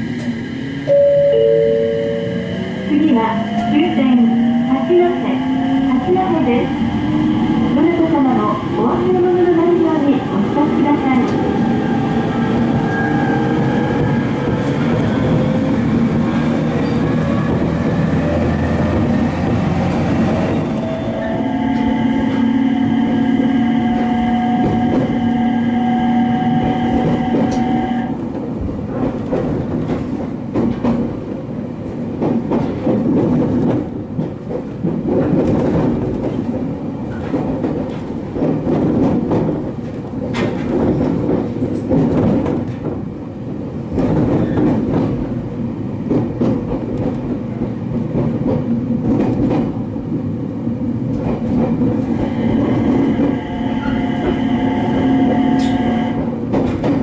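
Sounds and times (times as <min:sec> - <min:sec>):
electric train whine: 0:00.0 - 0:09.0, 0:11.4 - 0:28.1, 0:52.0 - 0:56.8.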